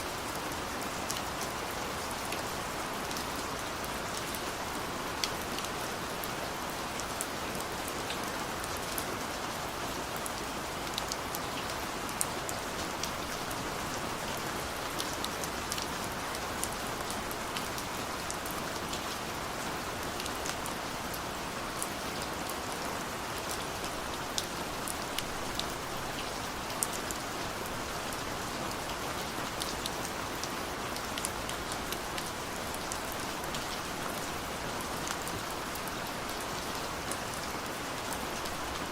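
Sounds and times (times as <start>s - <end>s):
raindrops ticking on a surface: 10.1s - 38.9s.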